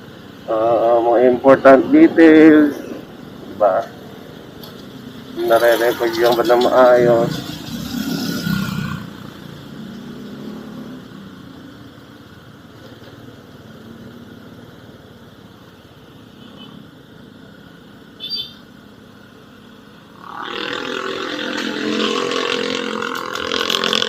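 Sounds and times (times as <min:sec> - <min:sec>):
vehicle engine and road noise: 0:00.0 - 0:24.0
high-pitched chirp: 0:18.2 - 0:18.7.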